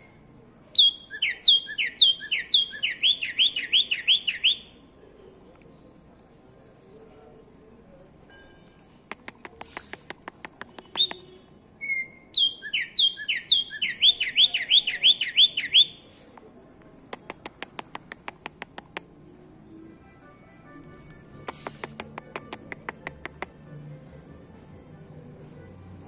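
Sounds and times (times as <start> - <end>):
bird whistled song phrase: 0.8 - 4.7, 10.8 - 16.1
bird high ticks: 8.7 - 11.4, 17.1 - 19.2, 21.0 - 23.6.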